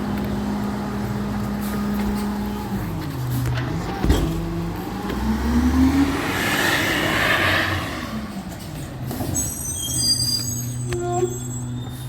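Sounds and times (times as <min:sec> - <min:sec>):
truck engine revving: 0:03.5 - 0:09.1.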